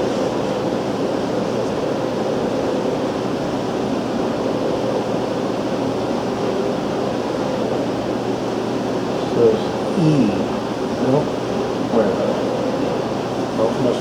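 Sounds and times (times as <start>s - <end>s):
fan humming: 0.0s - 14.0s.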